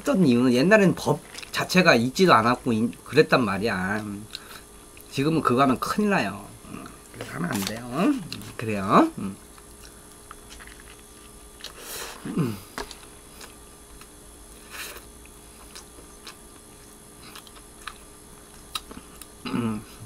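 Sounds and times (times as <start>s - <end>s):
person chewing a hamburger: 9.5s - 19.5s.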